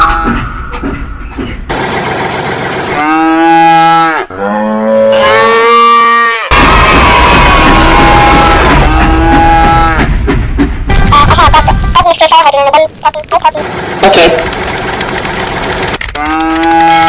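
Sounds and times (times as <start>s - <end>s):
cow mooing: 2.9s - 6.5s, 16.2s - 17.0s.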